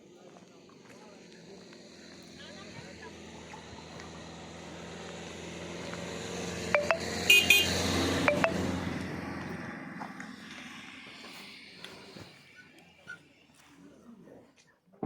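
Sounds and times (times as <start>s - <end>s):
vehicle passing: 0.5s - 12.6s
short horn toots: 7.3s - 7.8s.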